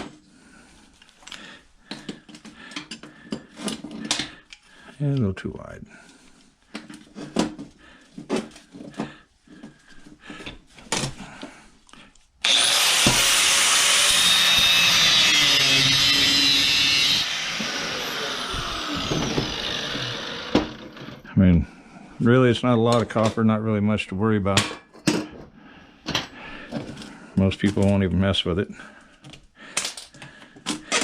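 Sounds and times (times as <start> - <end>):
angle grinder cutting metal: 12.4 - 21.2.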